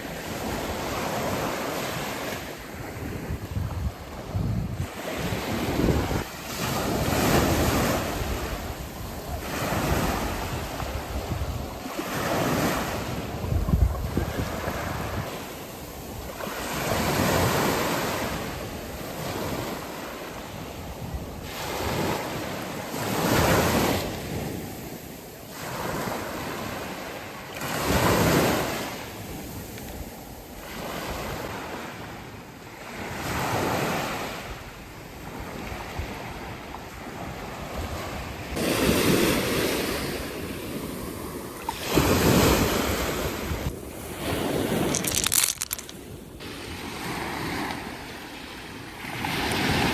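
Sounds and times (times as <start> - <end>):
wind on microphone: 0.0 - 18.8, 35.4 - 48.2
sea waves washing in: 36.5 - 49.9.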